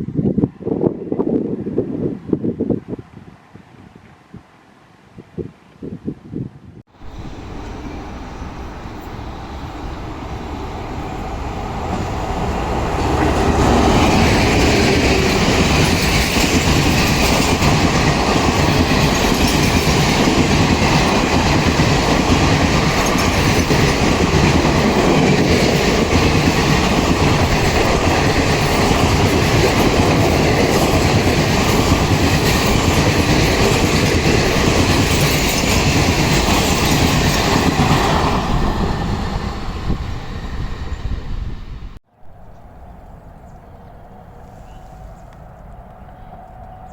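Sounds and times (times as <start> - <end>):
train passing: 6.9 - 46.9
wheels clattering on rails: 7.0 - 40.1.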